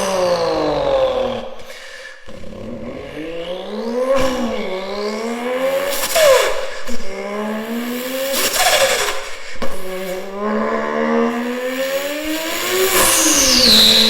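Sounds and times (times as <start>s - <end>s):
car accelerating hard past: 2.4s - 14.0s
high steady whine: 3.6s - 14.0s.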